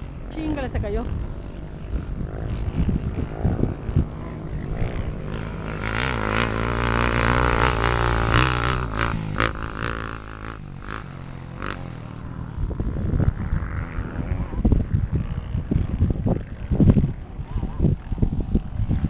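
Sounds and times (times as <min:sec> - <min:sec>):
racing engine revving: 0:02.1 - 0:12.0.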